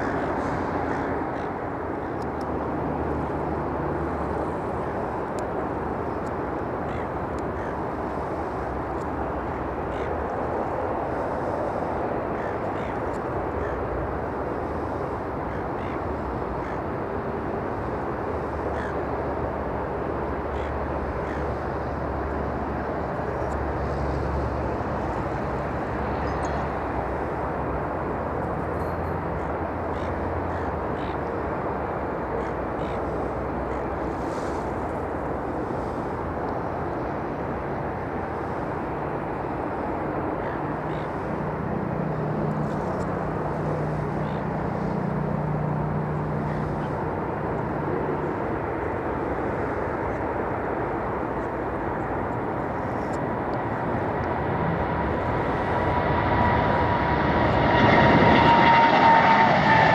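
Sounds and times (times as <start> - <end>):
faint bird calls: 0.0 - 2.1, 6.8 - 8.5, 9.4 - 10.2, 11.1 - 13.9, 15.5 - 16.8, 18.6 - 19.0, 20.5 - 21.8, 29.4 - 31.4, 32.3 - 34.7
jet engines rumbling: 0.0 - 59.9.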